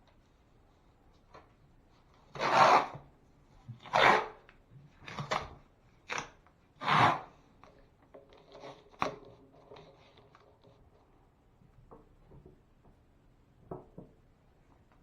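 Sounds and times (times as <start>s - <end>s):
hand tool rasping on drywall: 6.8s - 7.4s.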